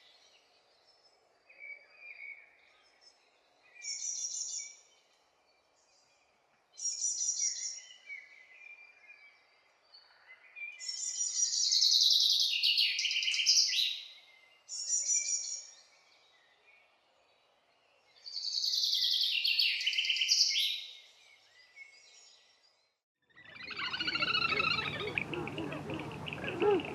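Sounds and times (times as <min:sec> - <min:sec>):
songbird singing: 0:06.8 - 0:26.9.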